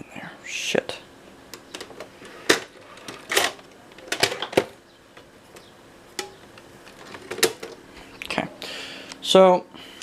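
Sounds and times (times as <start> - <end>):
faint steady hum: 0.0 - 10.0
camcorder handling clicks and knocks: 3.3 - 4.8.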